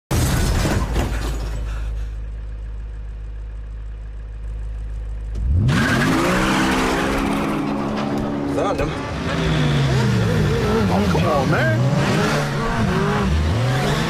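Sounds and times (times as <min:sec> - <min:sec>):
low steady rumble: 0:01.6 - 0:05.7
car engine revving: 0:05.2 - 0:14.0.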